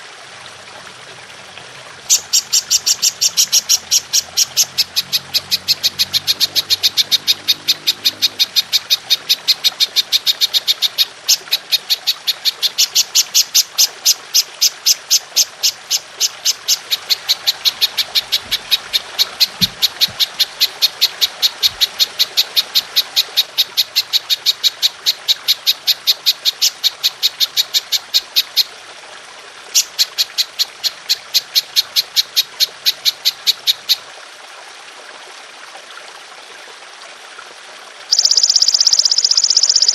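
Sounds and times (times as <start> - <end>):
water trickling: 0.0 - 39.9
grasshopper chirping: 38.1 - 39.9.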